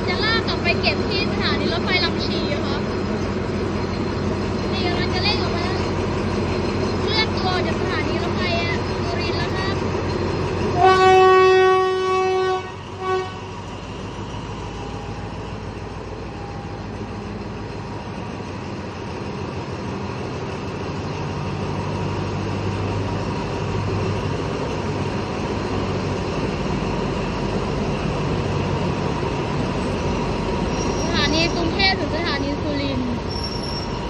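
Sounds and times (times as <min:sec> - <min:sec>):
diesel locomotive engine running: 0:00.0 - 0:34.0
train horn: 0:10.8 - 0:13.5.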